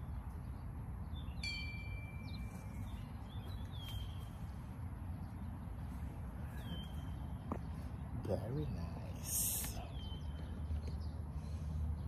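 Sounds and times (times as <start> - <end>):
whistled bird calls: 1.2 - 4.4, 6.4 - 7.4.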